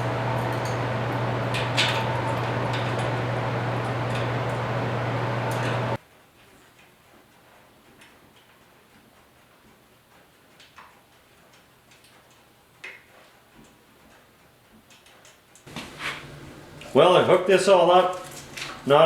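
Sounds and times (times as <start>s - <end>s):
low machine hum: 0.0s - 6.0s, 15.7s - 17.4s.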